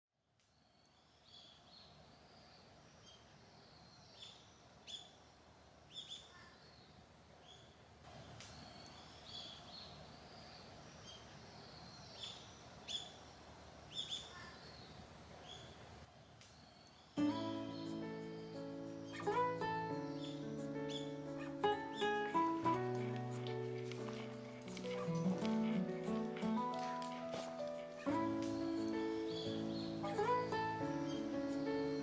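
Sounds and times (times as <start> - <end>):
small birds chirping: 0.4 - 32.0.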